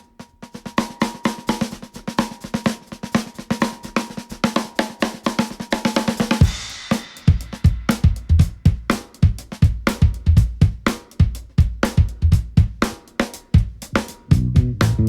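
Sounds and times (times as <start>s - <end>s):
fast snare drum pattern: 0.0s - 15.0s
loud bass drum hit: 14.0s - 15.0s
band playing: 14.2s - 15.0s.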